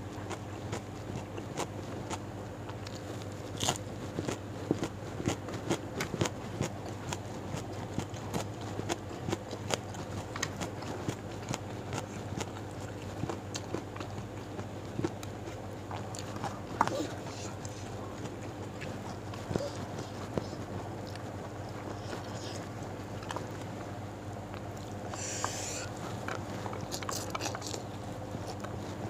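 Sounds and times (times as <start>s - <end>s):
chewing crunchy vegetables: 0.0s - 29.0s
faint steady hum: 0.0s - 29.0s
wet mouth clicks: 25.1s - 25.9s.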